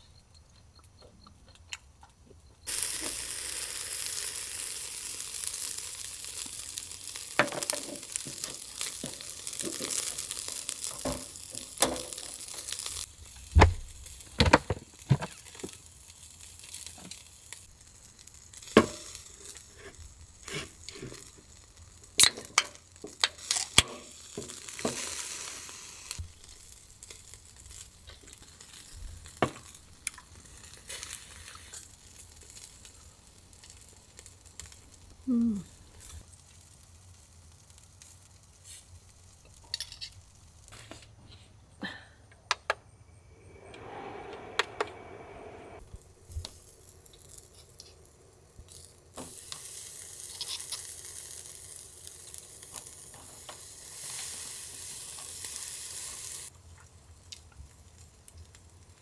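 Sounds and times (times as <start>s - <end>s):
food sizzling on hot surface: 2.7s - 35.4s, 43.5s - 56.6s.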